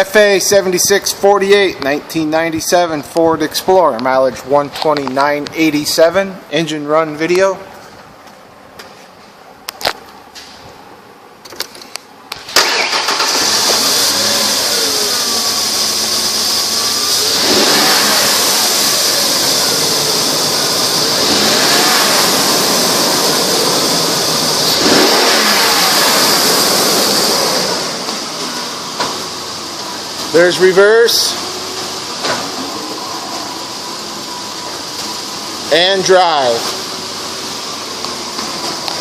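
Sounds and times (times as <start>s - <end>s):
car engine starting and revving: 12.3s - 39.0s.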